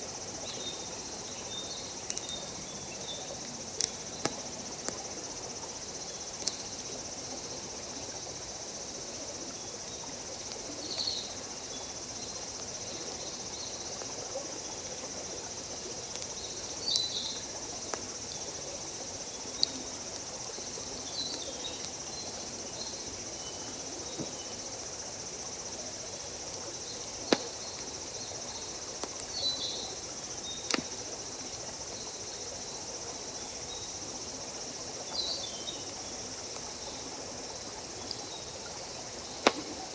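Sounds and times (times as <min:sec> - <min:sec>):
crickets and insects chorus: 0:00.0 - 0:39.9
campfire crackling pops: 0:02.0 - 0:02.6, 0:03.4 - 0:05.1, 0:06.3 - 0:06.7, 0:17.8 - 0:18.1, 0:19.5 - 0:20.3, 0:21.2 - 0:22.0, 0:27.2 - 0:28.0, 0:28.8 - 0:29.4, 0:30.6 - 0:31.2, 0:39.4 - 0:39.9.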